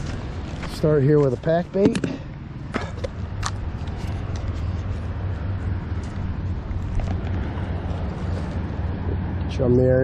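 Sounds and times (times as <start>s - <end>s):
low engine drone: 2.0s - 10.0s.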